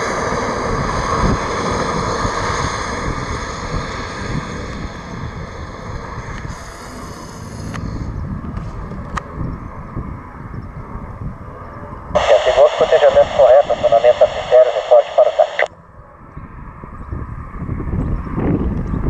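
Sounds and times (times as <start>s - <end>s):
aircraft engine whining: 0.0s - 8.2s, 12.2s - 15.7s
wind on microphone: 16.2s - 19.0s.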